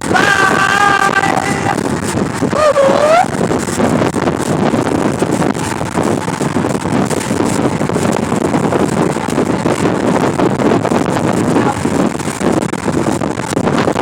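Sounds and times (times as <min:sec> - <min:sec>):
wind blowing across microphone: 0:00.0 - 0:14.0.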